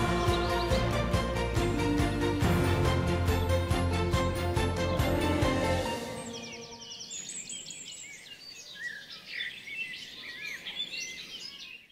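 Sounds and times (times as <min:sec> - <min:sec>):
background music: 0:00.0 - 0:07.2
birds chirping and calling: 0:05.8 - 0:11.9.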